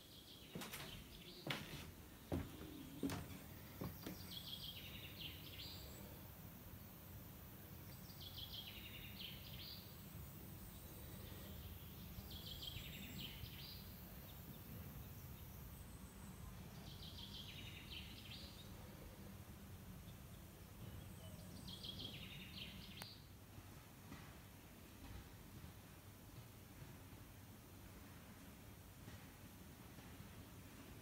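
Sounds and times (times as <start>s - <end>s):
songbird singing: 0.0s - 6.2s, 7.6s - 19.3s, 19.9s - 23.3s.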